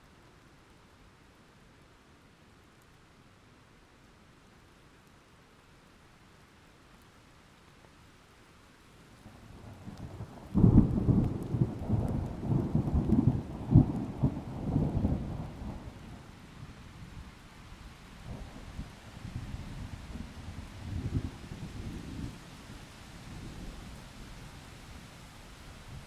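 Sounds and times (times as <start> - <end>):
faint rain: 0.0 - 26.0
thunder rumbling: 10.2 - 16.0.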